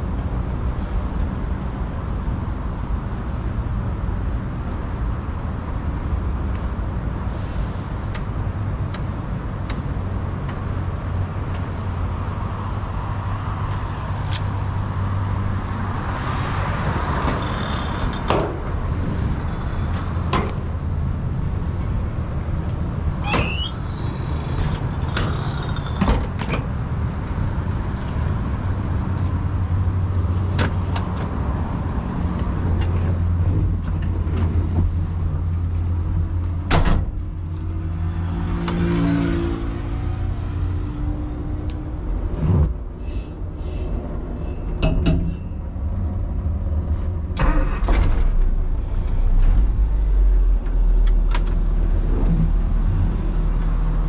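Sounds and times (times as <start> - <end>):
van doors opening and shutting: 23.1 - 23.9, 24.6 - 26.9, 36.5 - 37.4, 47.1 - 52.5.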